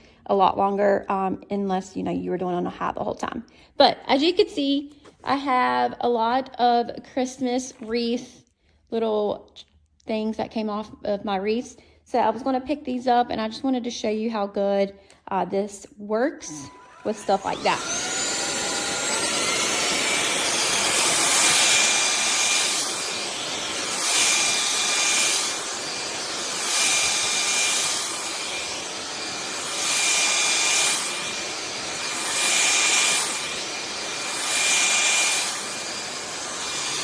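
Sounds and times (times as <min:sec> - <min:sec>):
stick vacuum whining: 0:16.4 - 0:37.0.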